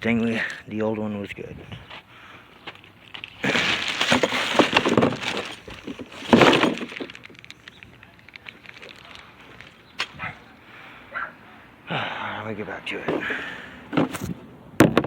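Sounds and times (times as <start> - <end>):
hard objects clattering: 2.7 - 9.8, 13.0 - 15.0.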